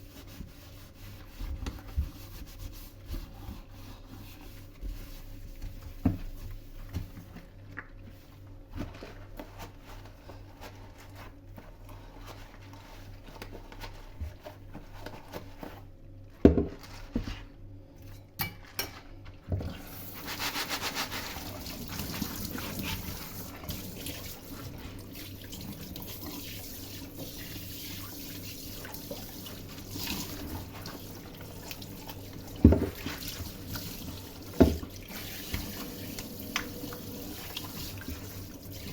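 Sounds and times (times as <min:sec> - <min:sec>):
tap running into a sink: 0:31.4 - 0:38.9.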